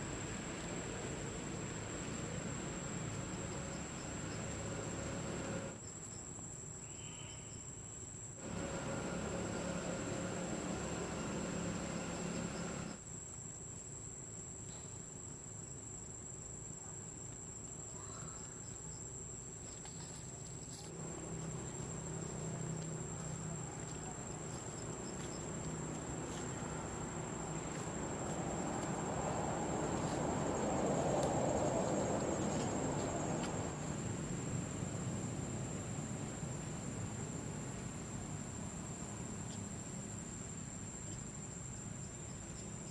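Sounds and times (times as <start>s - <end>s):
noisy hiss: 0.0s - 17.9s, 18.8s - 42.9s
high-pitched insect trill: 1.2s - 16.8s, 17.6s - 42.9s.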